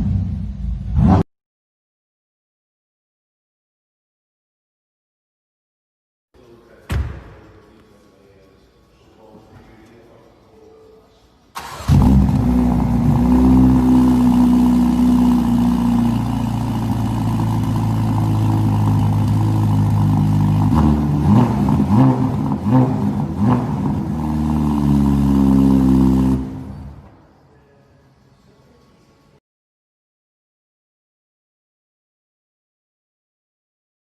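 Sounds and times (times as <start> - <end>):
sports car engine idling and revving: 11.8 - 27.1.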